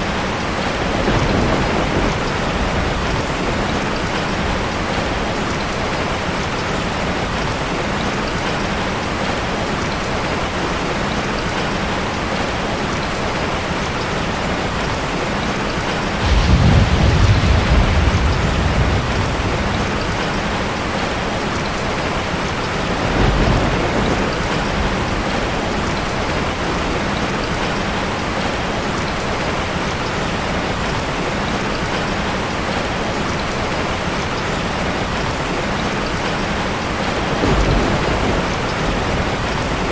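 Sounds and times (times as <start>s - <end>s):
thunder rumbling: 0.0s - 7.5s, 15.8s - 28.2s, 34.9s - 39.9s
heavy rain hissing: 14.3s - 39.9s.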